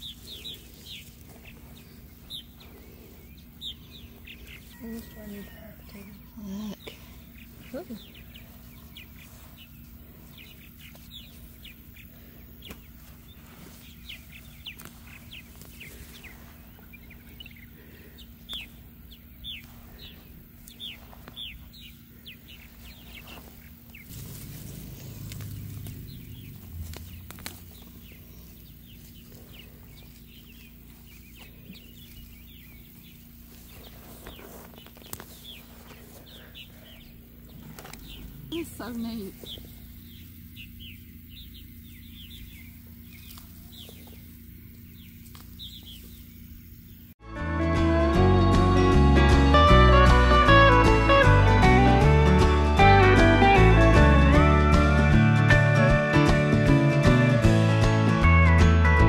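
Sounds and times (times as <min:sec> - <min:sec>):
birds chirping: 0:00.0 - 0:47.2, 0:49.2 - 0:59.0
faint steady hum: 0:00.0 - 0:47.2
low rumble: 0:18.8 - 0:34.6.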